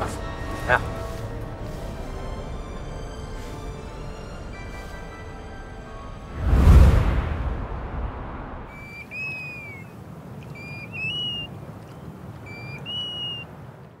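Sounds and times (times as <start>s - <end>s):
low outdoor rumble: 0.0s - 13.9s
whoosh: 6.3s - 8.8s
bird whistled call: 8.7s - 13.5s.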